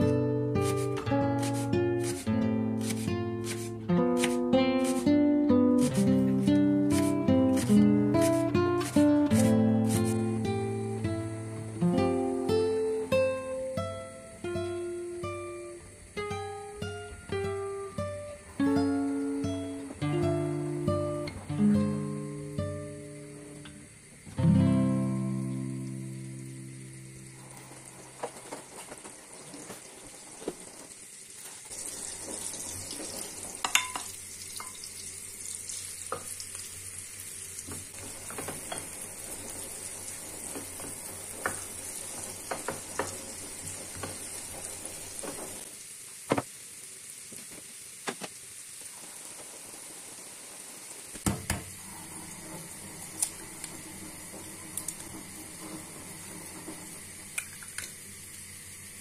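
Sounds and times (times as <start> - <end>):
food sizzling in a frying pan: 0.0 - 59.0
kitchen utensils and dishes clinking: 32.6 - 34.9, 37.7 - 39.1.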